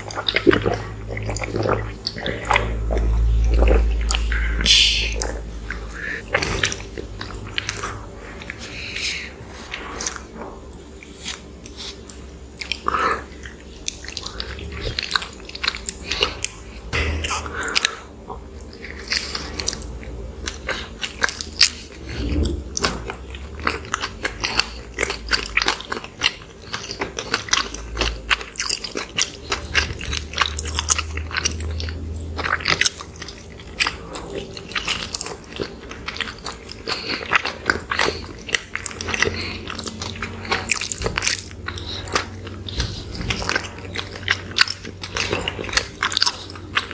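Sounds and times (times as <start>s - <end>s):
person biting and chewing: 0.0s - 46.9s.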